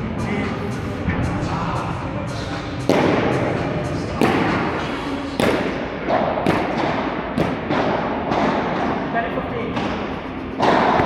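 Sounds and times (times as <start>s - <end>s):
court background noise: 0.0s - 11.0s
ball hit by padel rackets: 2.8s - 11.0s.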